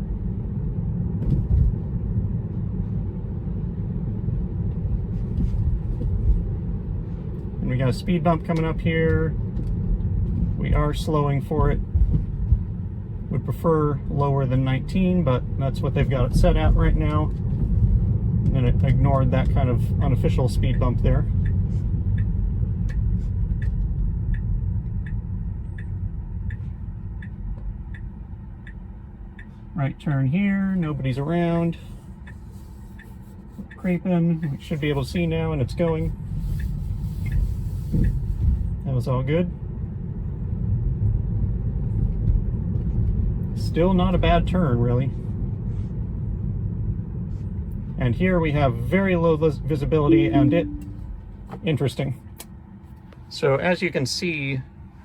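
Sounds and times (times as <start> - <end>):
road and tyre rumble in car: 0.0 - 55.0
turn signal ticking: 3.1 - 13.6, 14.8 - 30.0, 30.7 - 38.9, 50.0 - 51.6.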